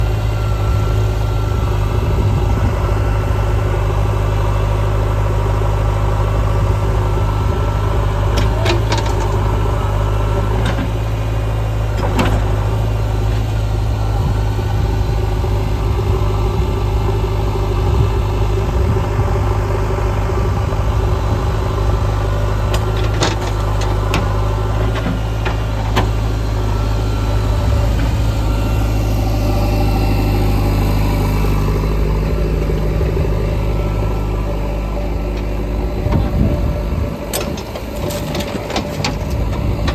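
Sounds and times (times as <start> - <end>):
heavy diesel engine running: 0.0 - 39.9
knocks and clanks: 8.4 - 9.5, 22.7 - 26.3, 35.3 - 39.9.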